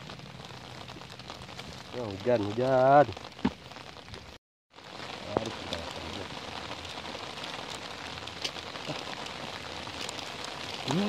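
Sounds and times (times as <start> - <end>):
rain falling on pond water: 0.0 - 11.0.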